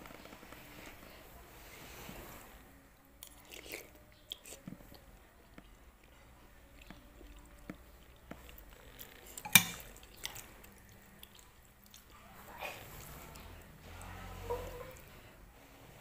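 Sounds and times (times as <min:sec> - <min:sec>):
person chewing soup: 0:03.1 - 0:15.3
metal spoon clinking on bowl: 0:09.4 - 0:09.9.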